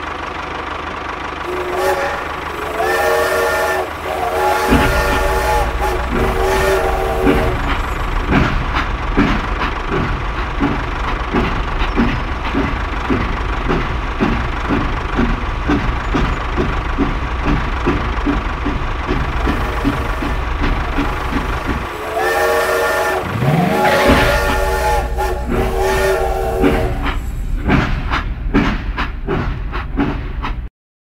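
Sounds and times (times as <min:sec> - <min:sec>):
low motor hum: 0:00.0 - 0:29.6
rhythmic chugging: 0:01.4 - 0:30.1
toy train whistle toots: 0:01.5 - 0:08.1, 0:19.4 - 0:20.4, 0:21.9 - 0:27.2.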